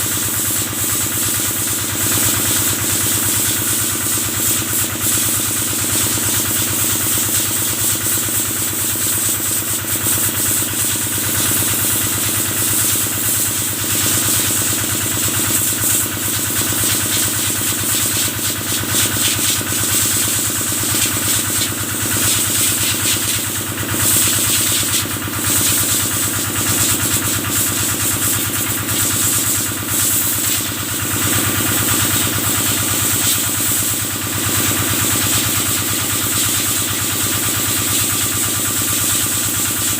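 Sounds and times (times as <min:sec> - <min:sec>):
spraying water hiss: 0:02.3 - 0:31.2.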